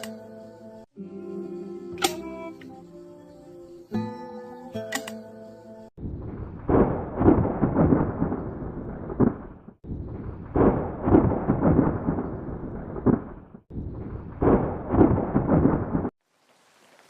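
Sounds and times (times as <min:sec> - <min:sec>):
thunder rumbling: 0:06.0 - 0:16.2
rain: 0:14.4 - 0:17.0.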